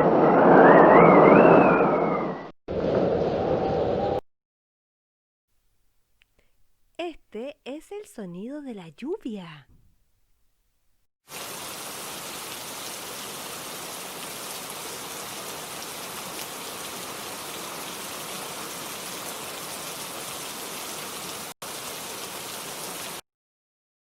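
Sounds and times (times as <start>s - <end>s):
steady rain falling: 11.3s - 23.2s.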